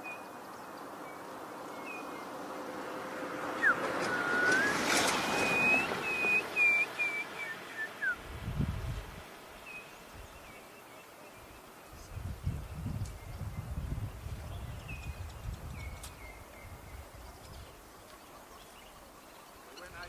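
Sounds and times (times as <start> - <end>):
noisy outdoor background: 0.0 - 20.0
bird calling whistled notes: 3.6 - 8.2.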